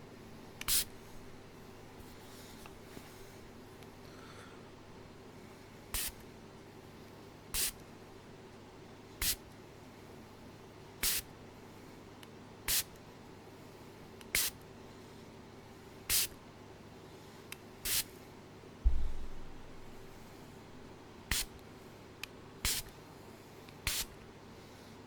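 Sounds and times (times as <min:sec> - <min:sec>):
faint steady hum: 0:00.0 - 0:25.0
short sharp hissing bursts: 0:00.6 - 0:01.1, 0:06.0 - 0:06.2, 0:14.4 - 0:14.6, 0:16.1 - 0:16.3, 0:17.8 - 0:18.1, 0:18.9 - 0:21.5, 0:22.6 - 0:22.9, 0:23.9 - 0:24.1.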